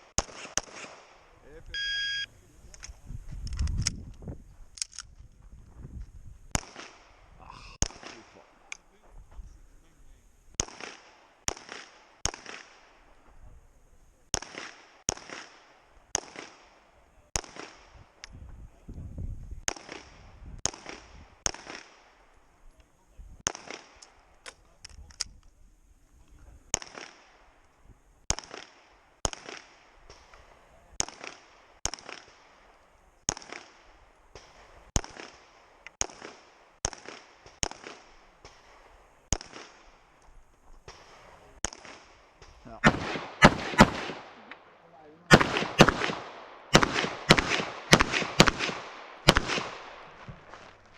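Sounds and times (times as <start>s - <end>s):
pistol gunshots with echo: 0.0s - 1.3s, 6.5s - 7.2s, 10.6s - 13.0s, 14.3s - 18.0s, 19.7s - 22.2s, 23.4s - 24.3s, 26.7s - 27.5s, 28.3s - 30.3s, 30.9s - 32.7s, 33.3s - 40.1s, 40.9s - 50.3s.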